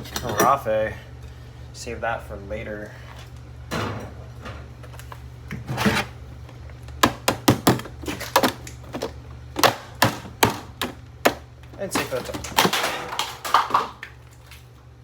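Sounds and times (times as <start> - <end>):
plastic housing cracking under blows: 6.4 - 14.2.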